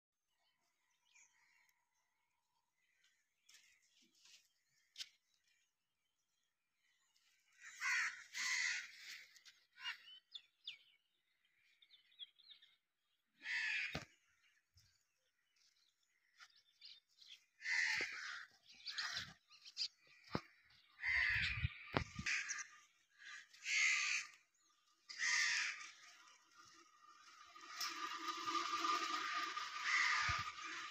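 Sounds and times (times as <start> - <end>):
crows cawing: 7.5 - 10.0, 13.4 - 14.1, 17.6 - 19.4, 20.2 - 24.4, 25.1 - 26.4, 29.2 - 30.9.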